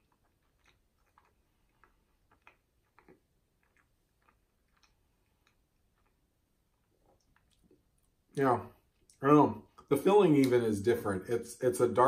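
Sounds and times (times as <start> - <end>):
chewing with mouth clicks: 0.0 - 8.2.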